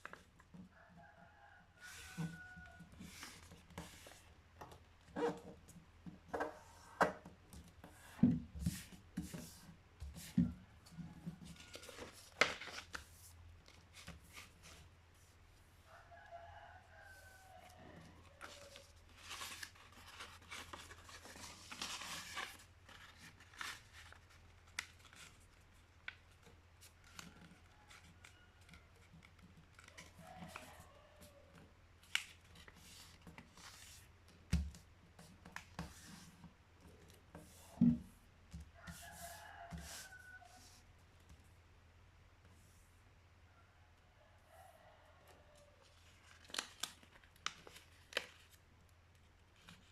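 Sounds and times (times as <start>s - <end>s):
paper rustling and creasing: 2.9s - 4.3s, 11.4s - 14.9s, 18.2s - 30.7s, 45.9s - 48.6s.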